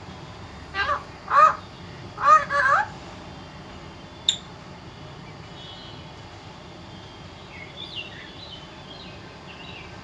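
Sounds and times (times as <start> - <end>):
background hum: 0.0 - 10.0
parrot chirping: 0.8 - 1.6, 2.2 - 2.9.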